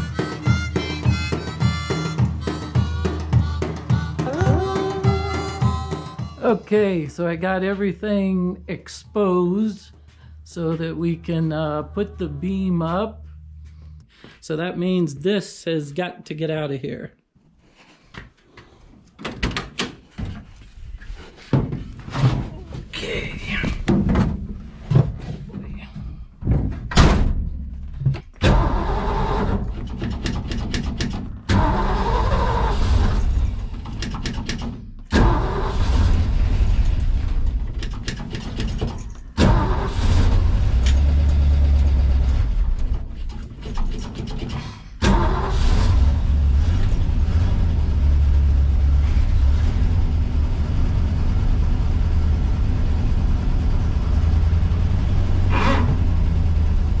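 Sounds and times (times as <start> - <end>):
car engine starting and running: 0.0 - 14.1, 28.2 - 57.0.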